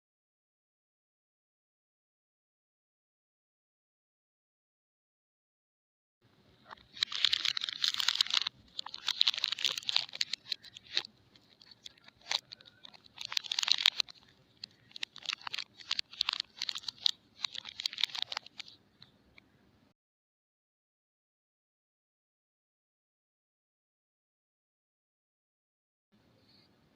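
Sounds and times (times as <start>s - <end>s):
sharp crackles: 6.7s - 18.7s
wrapping crinkling and tearing: 6.7s - 18.8s.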